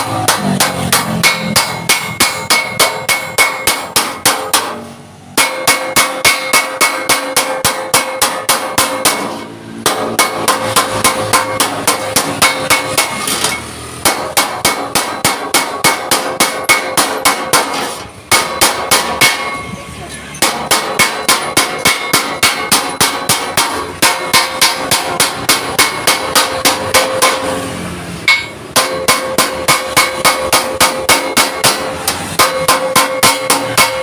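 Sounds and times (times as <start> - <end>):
hammer beating steel plate: 0.0 - 34.0.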